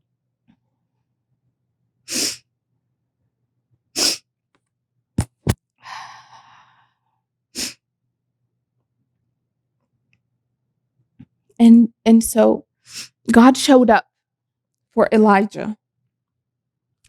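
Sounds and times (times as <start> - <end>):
short sharp breath bursts: 2.1 - 2.4, 4.0 - 4.2, 7.6 - 7.8, 12.9 - 13.2
quick knocks: 5.2 - 5.6.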